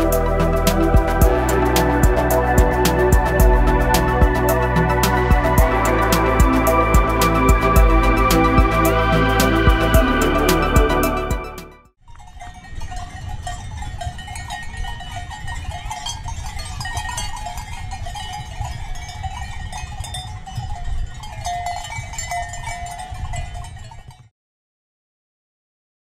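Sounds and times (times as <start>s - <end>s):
livestock bells clanking: 12.1s - 24.3s
wind rumble on microphone: 12.5s - 24.3s.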